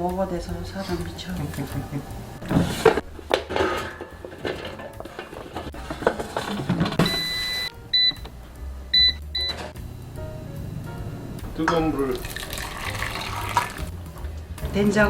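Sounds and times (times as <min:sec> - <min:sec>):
kitchen utensils clattering: 0:00.8 - 0:07.7
appliance electronic beeps: 0:06.9 - 0:08.3, 0:08.9 - 0:12.2.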